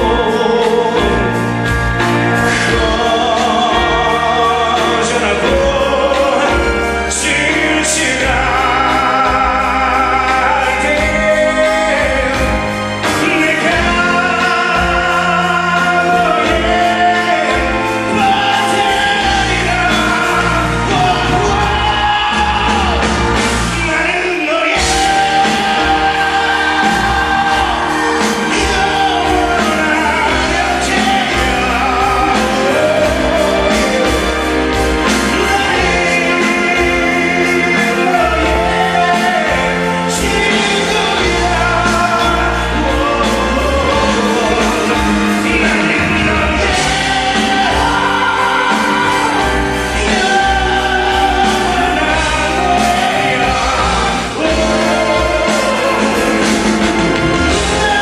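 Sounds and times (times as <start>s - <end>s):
live band playing rock ballad: 0.0s - 58.0s
man singing with vibrato: 0.0s - 58.0s.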